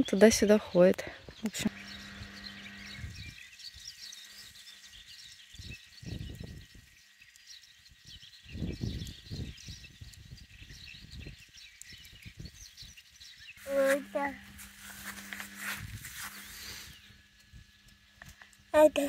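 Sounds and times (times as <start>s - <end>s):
small birds chirping: 0.0s - 19.0s
wind rumble on microphone: 2.0s - 3.9s, 5.5s - 7.0s, 7.9s - 13.0s.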